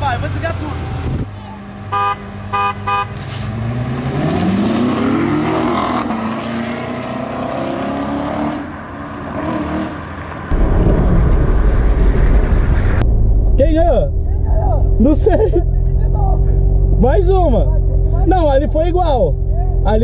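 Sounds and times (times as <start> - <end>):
car engine accelerating hard: 3.3 - 13.0, 13.6 - 20.0
loud low rumble: 10.5 - 20.0.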